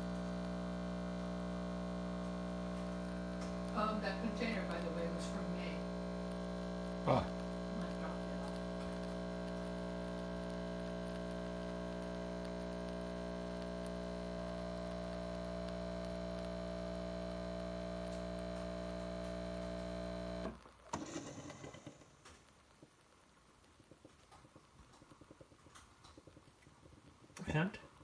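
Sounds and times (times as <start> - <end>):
coffee machine pump humming: 0.0 - 22.0.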